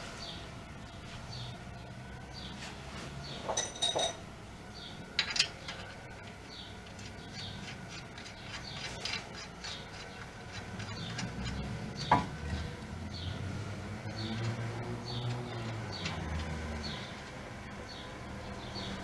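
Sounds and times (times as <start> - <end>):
small birds chirping: 0.2 - 2.6, 4.7 - 5.0, 5.6 - 19.0
metal clinks: 3.5 - 4.2, 5.2 - 5.9.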